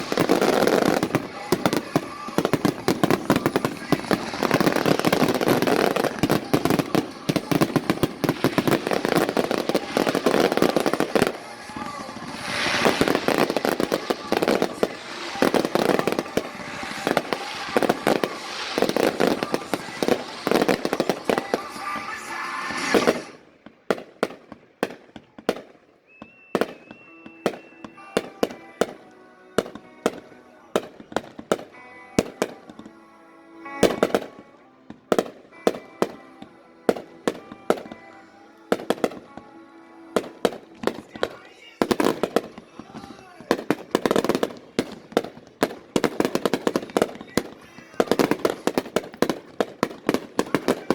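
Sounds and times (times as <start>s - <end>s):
sharp firework reports: 0.0s - 32.9s, 40.2s - 50.9s
fireworks bangs and crackling: 0.0s - 50.9s.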